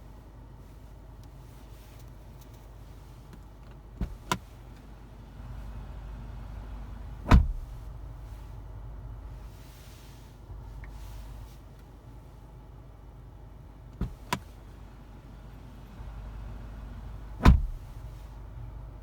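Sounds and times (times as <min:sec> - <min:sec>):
low steady rumble: 0:00.0 - 0:19.0
car door shutting: 0:03.7 - 0:08.0, 0:13.9 - 0:18.4.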